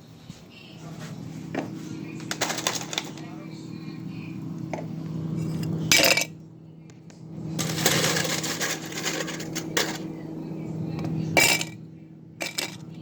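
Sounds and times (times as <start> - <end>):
utensil clinking on a plate: 7.6 - 10.1, 11.4 - 11.8, 12.4 - 12.9.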